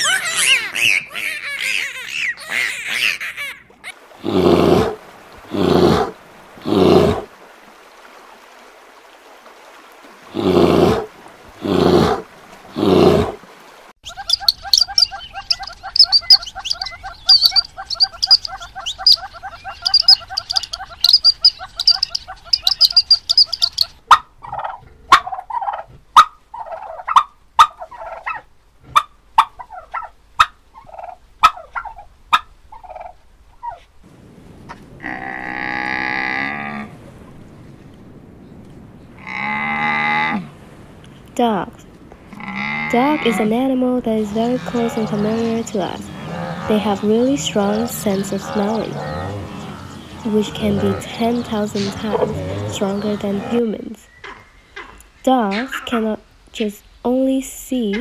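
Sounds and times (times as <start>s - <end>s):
songbird chattering song: 14.0s - 24.0s, 44.2s - 56.1s
turkeys gobbling: 14.0s - 33.9s, 44.2s - 53.6s
loud deep animal calls: 44.2s - 54.9s.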